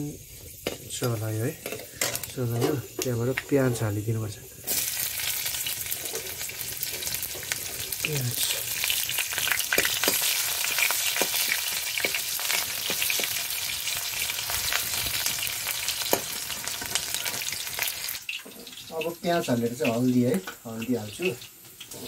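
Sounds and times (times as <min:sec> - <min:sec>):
onion sizzling in hot oil: 0:00.0 - 0:22.0
steel spoon scraping pan: 0:01.5 - 0:02.9.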